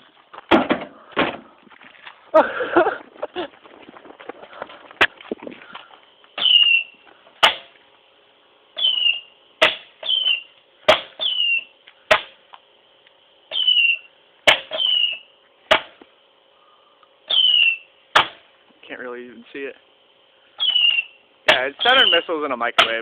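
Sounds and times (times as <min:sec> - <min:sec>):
firework rocket whistles: 0:06.4 - 0:07.0, 0:08.8 - 0:09.3, 0:10.0 - 0:10.5, 0:11.2 - 0:11.7, 0:13.5 - 0:14.1, 0:14.7 - 0:15.2, 0:17.3 - 0:17.9, 0:20.6 - 0:21.2.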